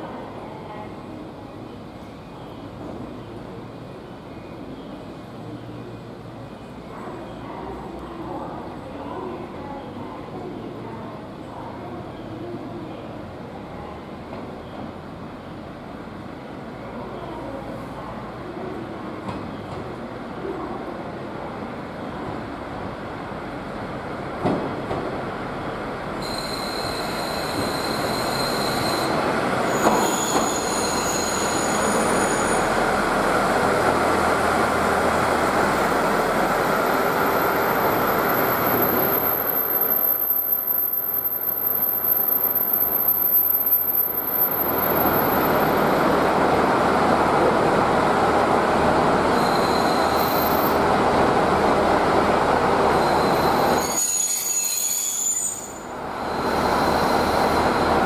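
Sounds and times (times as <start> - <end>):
diesel train engine and wheels: 0.0 - 58.0
wheels squealing on rails: 26.2 - 33.4, 35.7 - 46.2, 49.0 - 51.0, 52.7 - 58.0.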